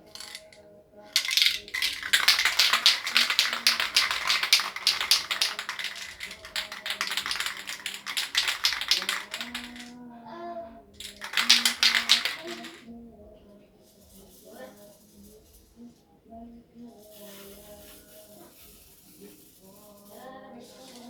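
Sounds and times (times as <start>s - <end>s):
rapid irregular tapping: 0.0s - 0.6s, 1.2s - 9.9s, 11.0s - 12.8s.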